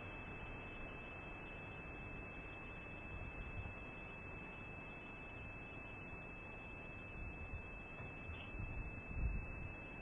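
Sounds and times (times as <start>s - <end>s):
constant high-pitched tone: 0.0s - 10.0s
wind on microphone: 8.5s - 9.6s.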